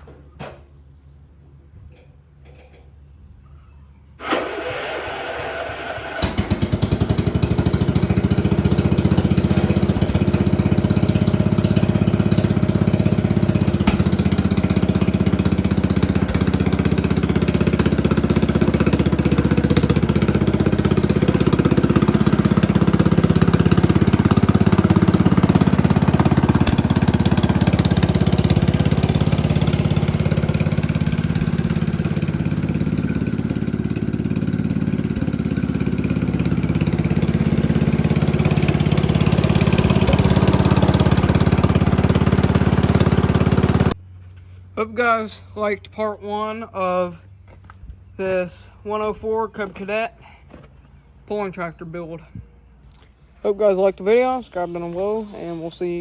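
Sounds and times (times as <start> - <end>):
engine cranking on electric starter: 4.2 - 44.0
engine running steadily: 4.2 - 51.2.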